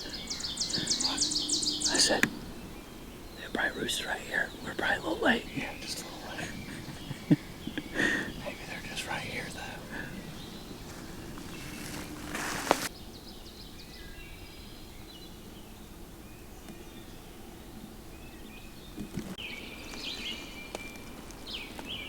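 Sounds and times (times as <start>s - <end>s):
songbirds chirping: 0.0s - 22.0s
rustling: 8.5s - 12.9s.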